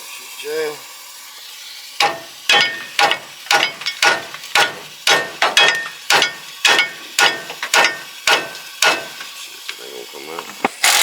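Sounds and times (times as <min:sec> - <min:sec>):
hammer striking metal: 0:02.0 - 0:09.2.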